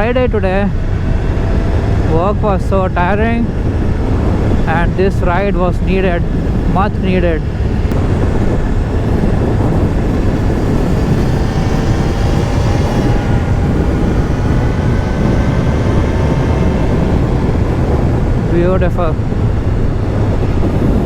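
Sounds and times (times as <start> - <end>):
motorcycle engine droning: 0.0 - 21.0
wind rushing over microphone: 0.0 - 21.0.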